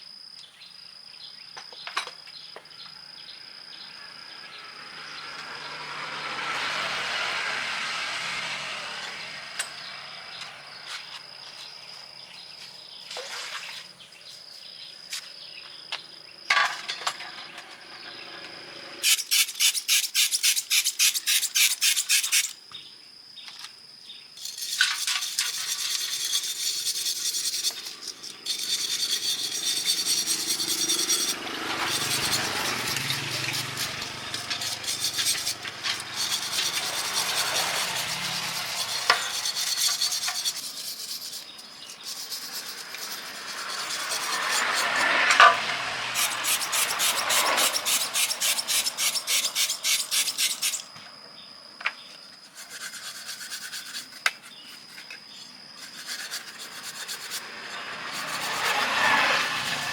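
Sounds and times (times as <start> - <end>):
sharp repeated strokes: 19.0 - 22.6, 24.4 - 50.9, 52.5 - 55.1, 55.8 - 59.9
abrasive scraping: 24.4 - 50.9, 52.6 - 59.9.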